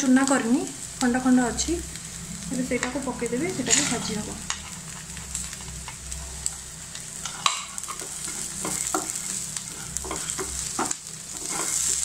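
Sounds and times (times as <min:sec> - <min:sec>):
onions sizzling in oil: 0:00.0 - 0:12.0
wooden spatula scraping pan: 0:03.6 - 0:05.2, 0:07.2 - 0:12.0.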